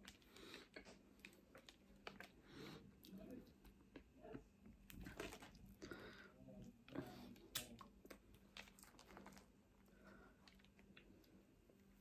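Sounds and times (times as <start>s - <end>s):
chewing with mouth clicks: 0.0s - 5.9s.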